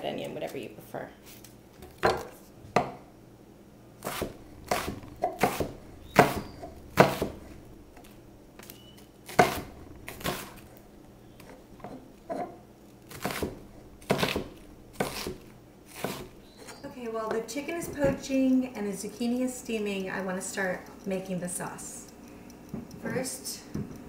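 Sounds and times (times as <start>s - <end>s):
knife chopping on cutting board: 4.0s - 6.4s, 13.1s - 16.3s.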